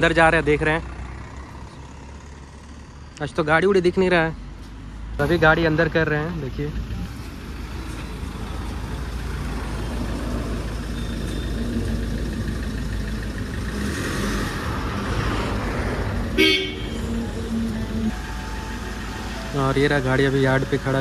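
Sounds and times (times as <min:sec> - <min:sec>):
traffic rumble: 0:00.0 - 0:21.0
car engine running low: 0:06.4 - 0:21.0
car horn toot: 0:16.4 - 0:17.2.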